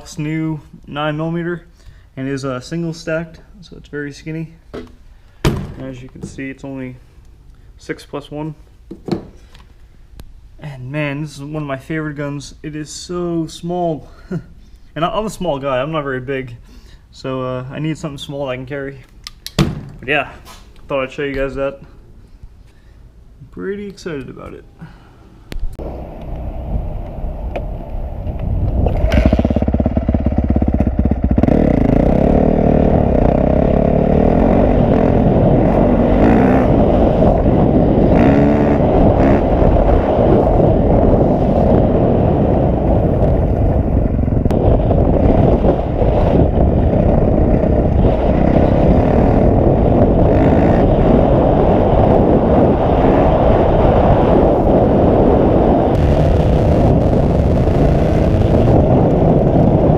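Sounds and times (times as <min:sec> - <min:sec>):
rushing noise: 0:25.8 - 0:59.9
motorcycle engine running: 0:28.9 - 0:39.9, 0:43.6 - 0:51.2.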